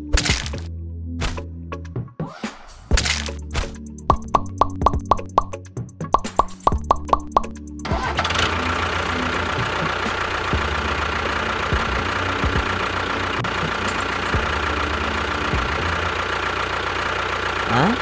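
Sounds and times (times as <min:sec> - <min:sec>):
quick plopping clicks: 0:04.1 - 0:05.6, 0:06.2 - 0:07.5
motor running steadily: 0:07.9 - 0:18.0.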